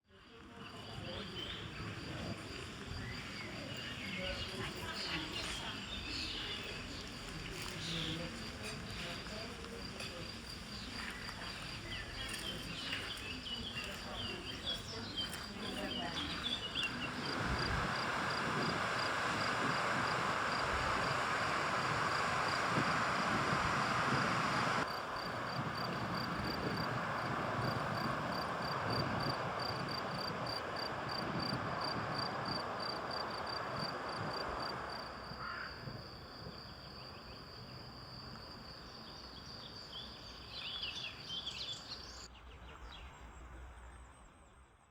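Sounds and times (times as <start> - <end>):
steady rushing noise: 16.0 - 35.3.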